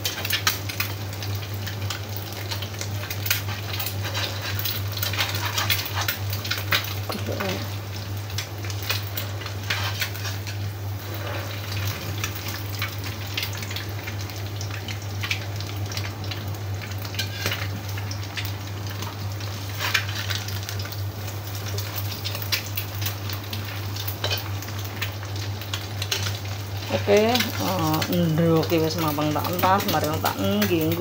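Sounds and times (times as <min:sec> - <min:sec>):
egg sizzling in hot oil: 0:00.0 - 0:31.0
metal spatula in pan: 0:03.1 - 0:06.9, 0:08.9 - 0:10.6, 0:17.1 - 0:17.7, 0:24.2 - 0:24.5.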